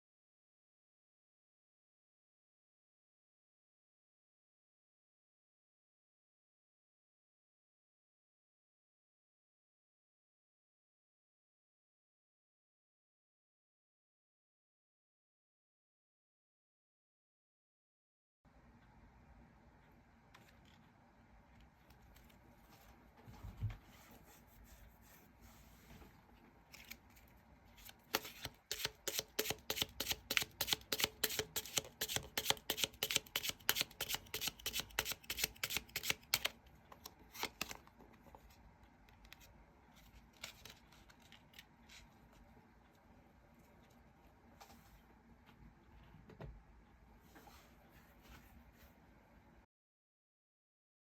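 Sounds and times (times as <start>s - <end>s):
cards being shuffled: 26.7s - 37.9s, 39.2s - 42.4s.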